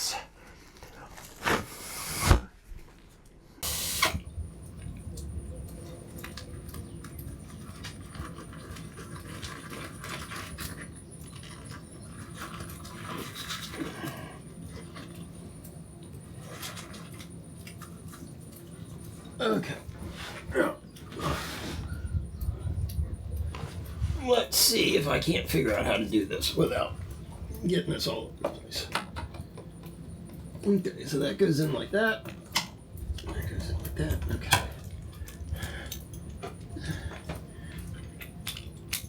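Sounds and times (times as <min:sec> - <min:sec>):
steady low background noise: 0:02.5 - 0:10.0, 0:17.2 - 0:39.0.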